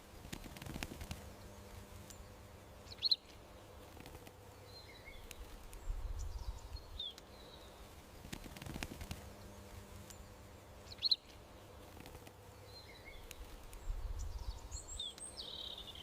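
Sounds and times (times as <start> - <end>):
small birds chirping: 0.0 - 16.0
faint low rumble: 8.8 - 15.1.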